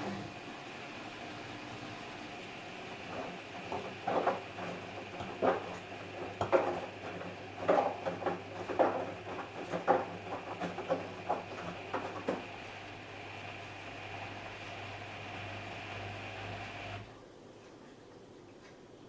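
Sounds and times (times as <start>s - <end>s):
washing machine motor hum: 0.0s - 17.3s.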